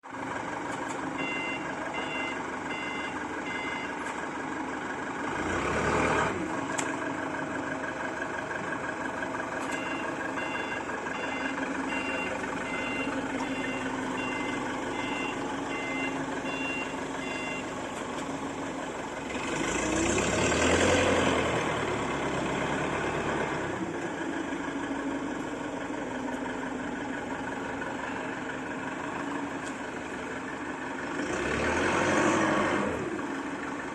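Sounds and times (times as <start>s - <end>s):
engine running: 0.0s - 33.9s
reversing alarm beeping: 1.2s - 4.0s, 9.7s - 17.8s.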